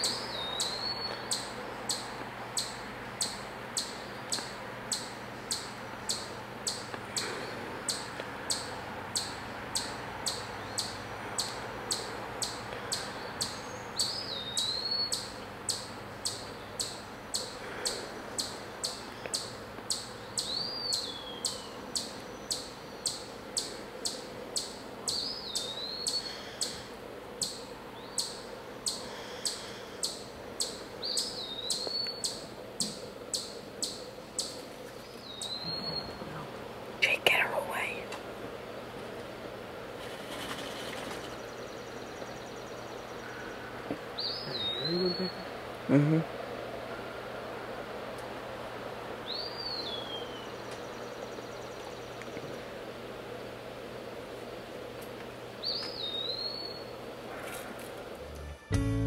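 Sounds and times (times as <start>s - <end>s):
birds calling: 0.0s - 38.3s, 39.9s - 53.0s, 55.5s - 58.2s.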